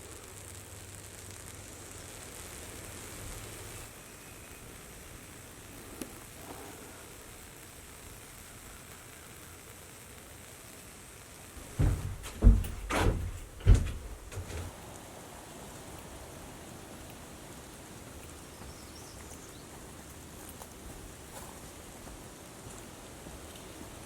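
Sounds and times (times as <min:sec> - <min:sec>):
faint steady hiss: 0:00.0 - 0:24.0
dull thumps and knocks: 0:11.6 - 0:14.7.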